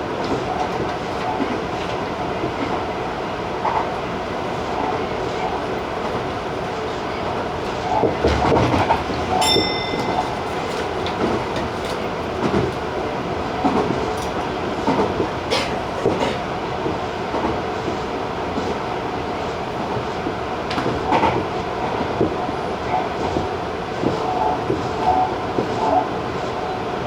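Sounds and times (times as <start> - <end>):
clattering knocks from track: 8.0 - 12.9, 13.6 - 16.4.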